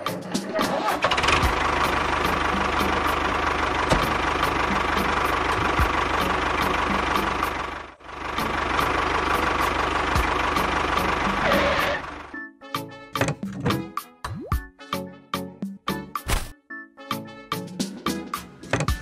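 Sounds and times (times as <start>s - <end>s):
tractor engine chugging: 0.4s - 12.4s.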